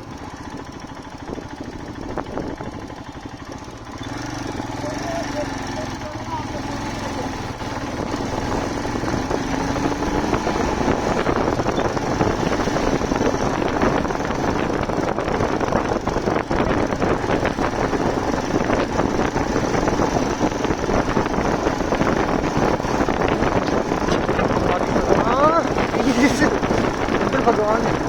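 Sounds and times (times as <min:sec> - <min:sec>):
wind noise: 0:00.0 - 0:03.6, 0:07.5 - 0:28.0
motorcycle engine running: 0:00.0 - 0:28.0.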